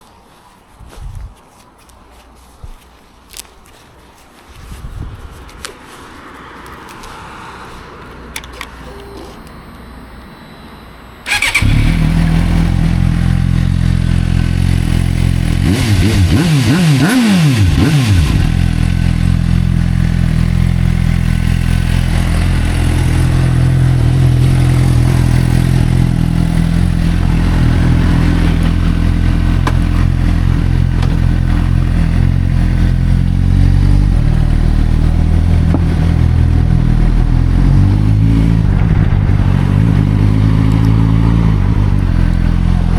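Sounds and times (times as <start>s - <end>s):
motorcycle engine idling and revving: 11.2s - 42.9s.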